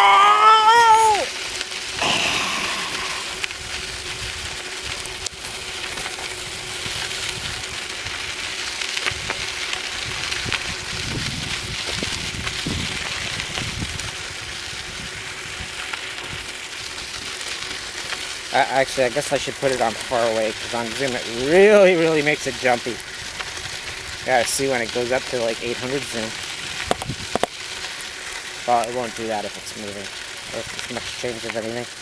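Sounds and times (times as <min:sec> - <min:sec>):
bicycle tyres rolling: 0:00.0 - 0:32.0
wind on microphone: 0:10.0 - 0:15.7, 0:26.8 - 0:27.4.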